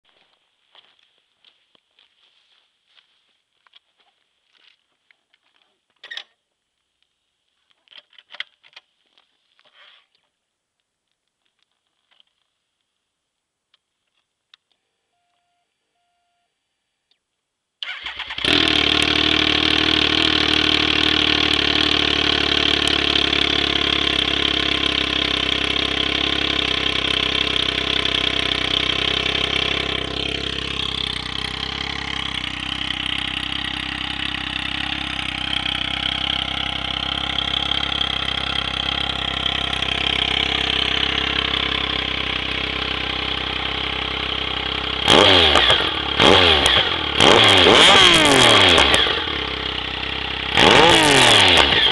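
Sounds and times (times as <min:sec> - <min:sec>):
motorcycle engine idling: 0:17.8 - 0:51.9
motorcycle engine revving: 0:17.8 - 0:51.9.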